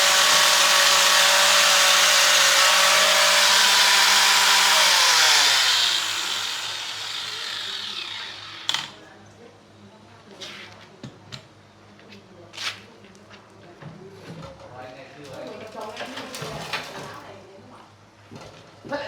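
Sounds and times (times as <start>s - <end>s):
power tool motor whine spinning down: 0.0s - 8.9s.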